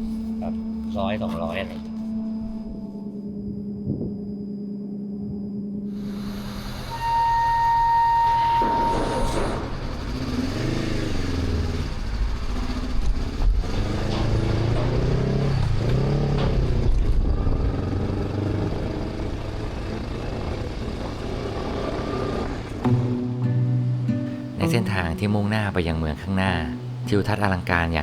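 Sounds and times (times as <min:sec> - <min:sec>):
steady high tone: 0:00.1 - 0:09.8, 0:23.0 - 0:28.0
motorcycle engine accelerating: 0:09.1 - 0:23.2.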